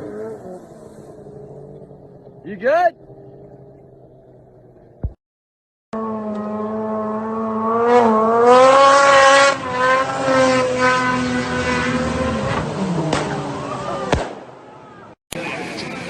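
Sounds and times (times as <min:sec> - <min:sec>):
snowmobile engine at high revs: 0:00.0 - 0:01.8, 0:06.0 - 0:14.2.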